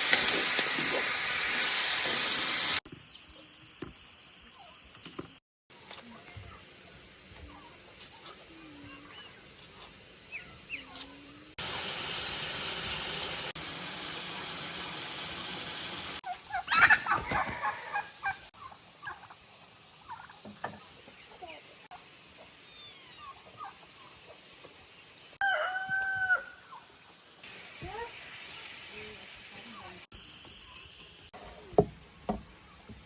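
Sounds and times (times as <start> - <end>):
turkey gobbling: 16.2 - 20.4, 23.2 - 23.9.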